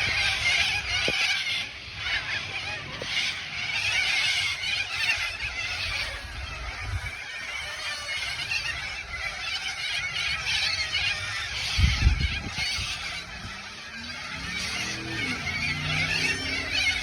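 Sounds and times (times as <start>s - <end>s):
flock of birds calling: 0.0s - 17.0s
geese honking: 0.0s - 17.0s.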